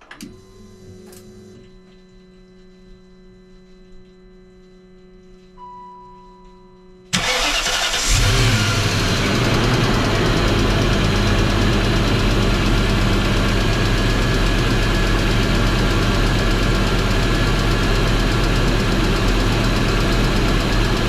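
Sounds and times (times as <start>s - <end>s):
short beep: 5.6s - 7.2s
car engine cranking and running: 7.1s - 21.0s.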